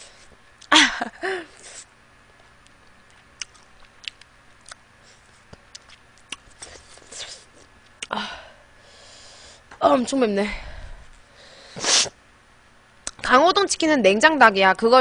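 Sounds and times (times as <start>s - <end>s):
chewing: 2.6s - 8.1s.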